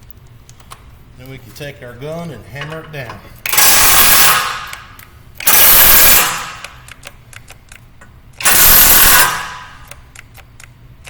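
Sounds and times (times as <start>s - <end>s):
impact wrench hammering bolt: 3.4s - 7.0s, 8.4s - 10.0s.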